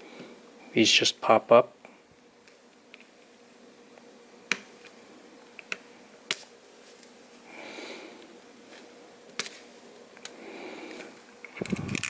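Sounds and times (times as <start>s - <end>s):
connectors clicking off sockets: 11.6s - 12.0s.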